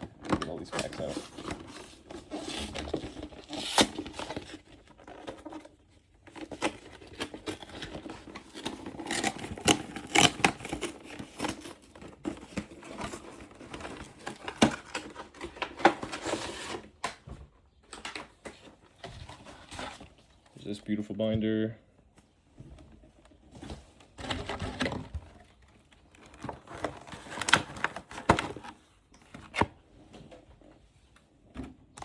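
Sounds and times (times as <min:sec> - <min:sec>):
packaging rustling and crinkling: 0:00.0 - 0:20.8, 0:22.8 - 0:30.7
packaging tearing: 0:06.4 - 0:16.8.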